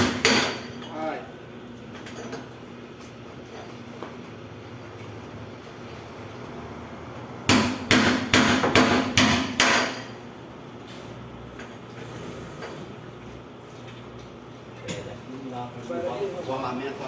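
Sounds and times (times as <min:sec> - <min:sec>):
hammer striking metal: 0:00.0 - 0:00.7, 0:07.5 - 0:10.1.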